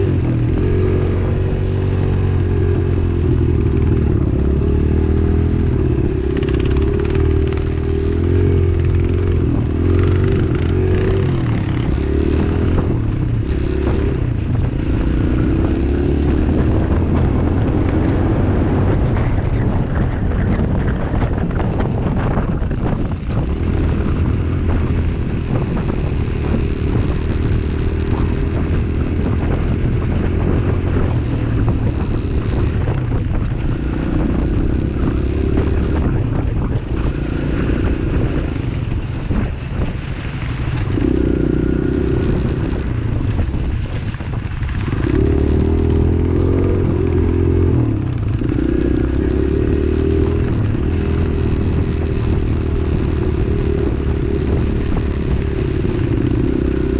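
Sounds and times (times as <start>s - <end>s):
dirt bike engine revving: 0.0s - 18.4s, 44.7s - 56.9s
rush of noise: 0.0s - 56.9s.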